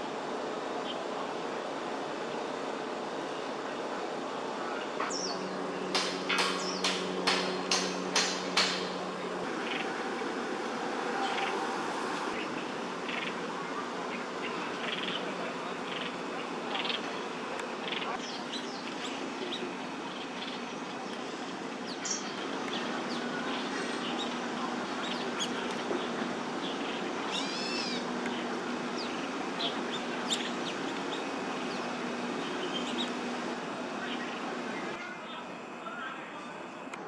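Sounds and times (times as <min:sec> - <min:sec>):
steady low hum: 0:00.0 - 0:37.0
small birds chirping: 0:04.7 - 0:09.0, 0:12.3 - 0:35.4.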